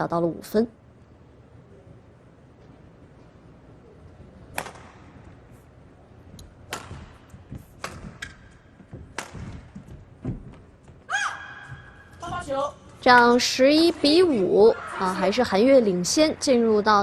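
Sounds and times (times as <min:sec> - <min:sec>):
racket striking shuttlecock: 0:04.5 - 0:05.2, 0:06.4 - 0:09.8
footwork thuds on court: 0:06.7 - 0:11.1.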